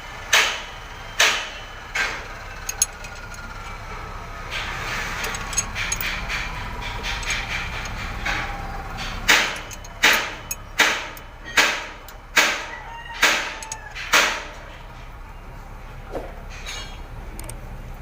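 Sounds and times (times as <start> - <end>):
wrench rasping metal strokes: 2.0 - 3.8, 4.4 - 14.5.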